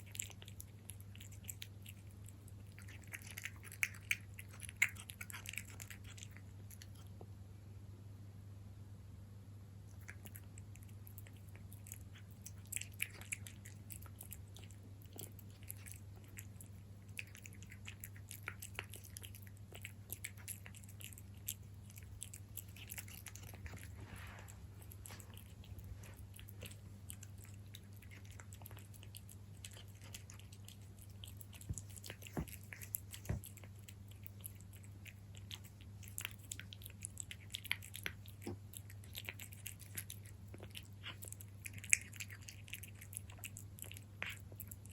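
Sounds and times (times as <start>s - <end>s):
cat chewing food: 0.0s - 7.4s, 9.8s - 44.9s.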